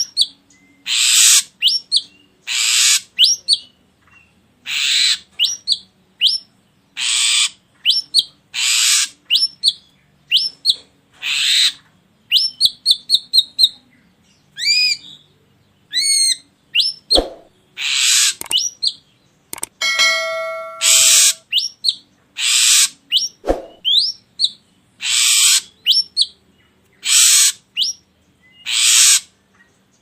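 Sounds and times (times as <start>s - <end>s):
bird song with rasps and whistles: 0.0s - 30.0s
sharp knock: 17.2s - 17.5s.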